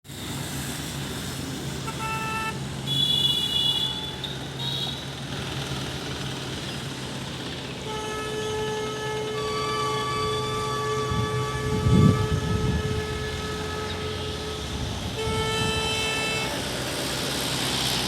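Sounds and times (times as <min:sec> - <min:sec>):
low vehicle engine hum: 0:00.1 - 0:18.0
vehicle horn toots: 0:01.9 - 0:05.1, 0:07.8 - 0:16.8.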